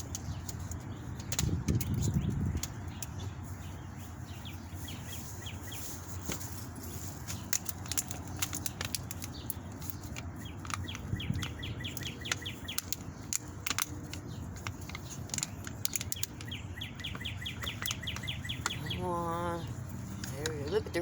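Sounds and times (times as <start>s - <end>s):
wind rumbling on microphone: 0.0s - 21.0s
songbird trilling: 0.1s - 6.0s, 9.2s - 21.0s
sharp clicks: 7.3s - 19.0s.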